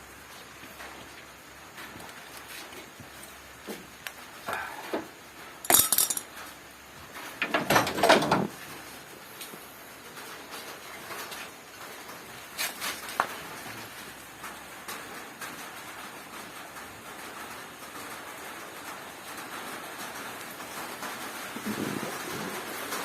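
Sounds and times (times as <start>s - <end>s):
rain falling: 0.0s - 23.0s
sharp knocks or clinks: 5.6s - 6.3s.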